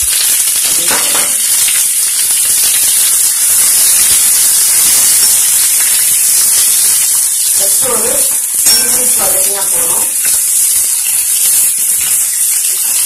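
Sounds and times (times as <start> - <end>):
vegetables sizzling in hot oil: 0.0 - 13.0
spoon stirring in pan: 7.9 - 13.0.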